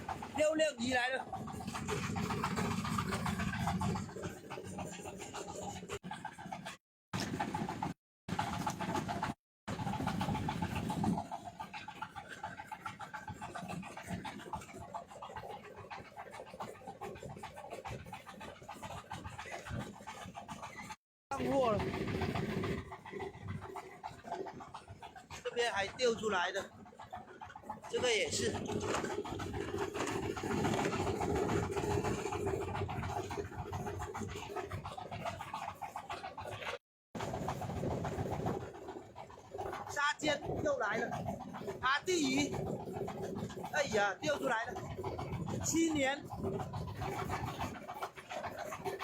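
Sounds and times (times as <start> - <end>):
boat motor running: 0.0 - 49.0
rapid rattle of net hauling: 18.3 - 49.0.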